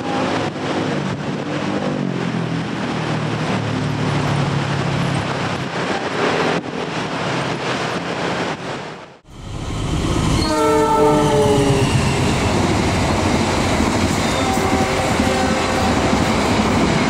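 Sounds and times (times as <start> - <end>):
wind on microphone: 0.0 - 9.1
distant train rumbling: 0.0 - 17.0.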